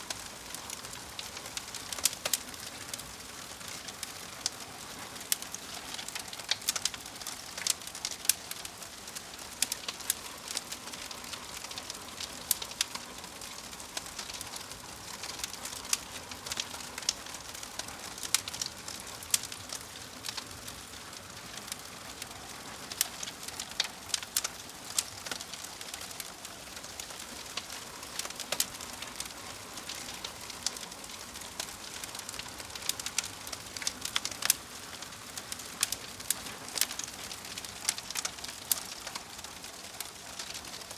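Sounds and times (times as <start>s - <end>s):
fire crackles and pops: 0.0s - 40.9s
wood fire hissing: 0.0s - 40.9s.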